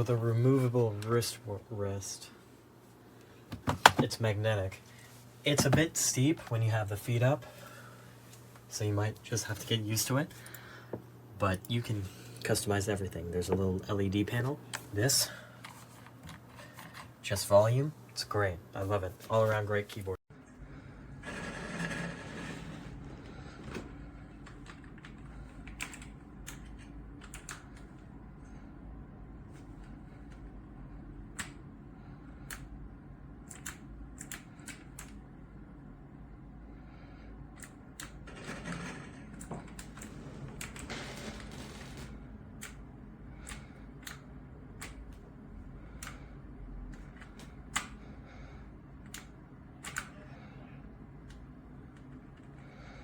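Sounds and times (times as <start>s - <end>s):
clicky keyboard keystrokes: 33.4s - 35.2s.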